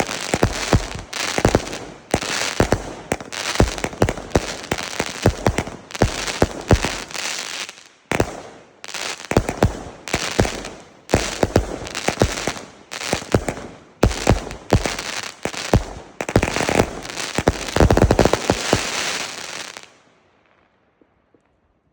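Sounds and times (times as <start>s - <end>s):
firework reports: 0.0s - 8.4s
firework crackling: 0.0s - 20.0s.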